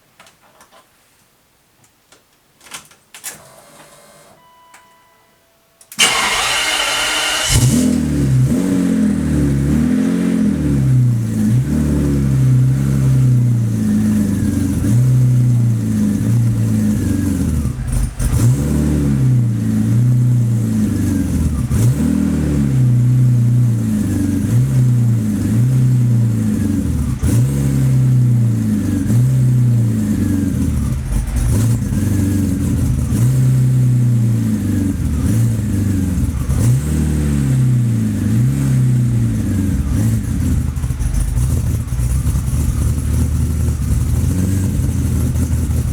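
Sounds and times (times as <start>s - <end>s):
car engine revving: 6.0s - 45.9s.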